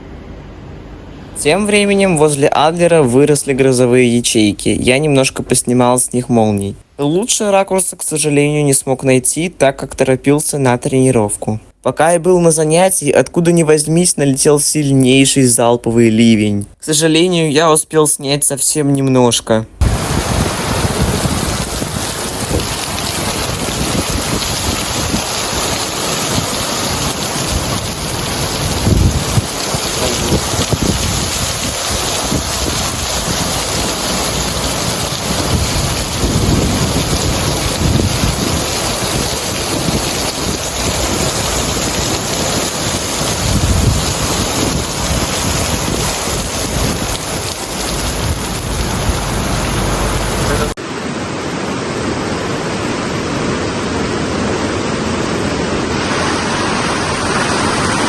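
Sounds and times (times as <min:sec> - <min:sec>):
heavy rain pouring: 0:01.4 - 0:06.2, 0:19.8 - 0:51.8
wind buffeting microphone: 0:19.8 - 0:50.8.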